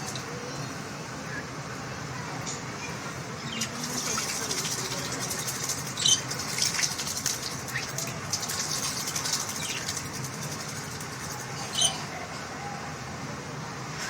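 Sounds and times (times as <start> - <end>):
water splashing: 0.0 - 0.4, 3.0 - 11.9
wings fluttering: 3.5 - 12.0.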